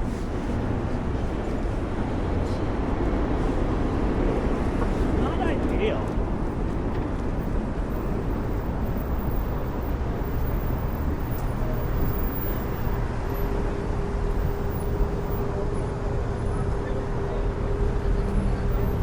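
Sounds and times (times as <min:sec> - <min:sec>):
traffic rumble: 0:00.0 - 0:19.0.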